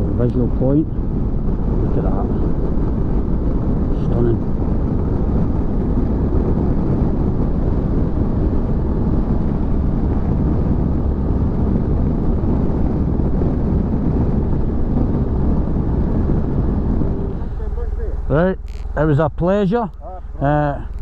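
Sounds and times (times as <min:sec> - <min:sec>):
wind rush on microphone: 0:00.0 - 0:21.0
motorcycle engine: 0:01.0 - 0:21.0.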